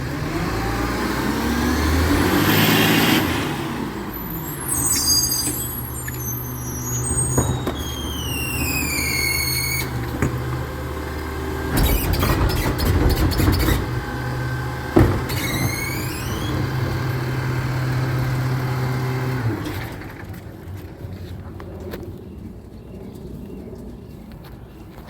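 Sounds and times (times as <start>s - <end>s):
truck engine running: 0.0s - 20.9s
high squeal: 4.1s - 10.0s, 15.1s - 17.2s.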